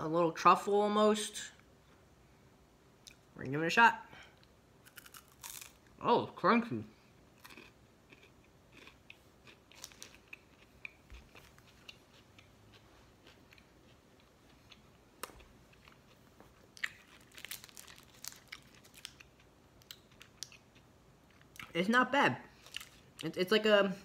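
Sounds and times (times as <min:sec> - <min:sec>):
person chewing crunchy chocolate: 0:04.8 - 0:05.9, 0:07.2 - 0:21.8, 0:22.6 - 0:23.3.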